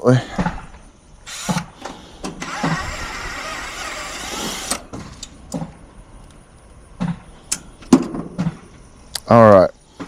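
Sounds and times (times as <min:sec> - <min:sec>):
rough noise: 0:00.4 - 0:05.4.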